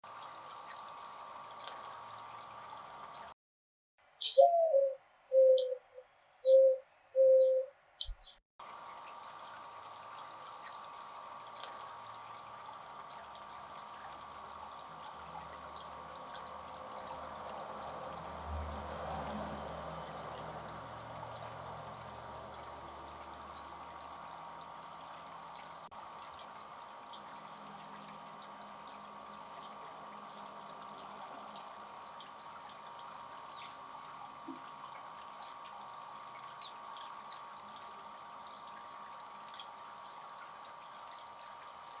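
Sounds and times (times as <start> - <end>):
water dripping: 0.1 - 3.3, 8.0 - 41.9
faint steady tone: 4.4 - 7.7
fountain water splashing: 8.6 - 25.4.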